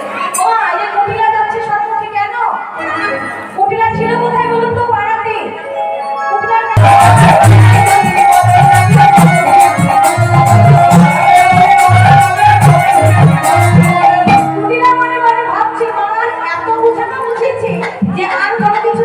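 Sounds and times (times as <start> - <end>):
held melodic notes: 2.8 - 18.2
drums beating quick rhythm: 6.8 - 15.4
jingling percussion: 6.8 - 15.6.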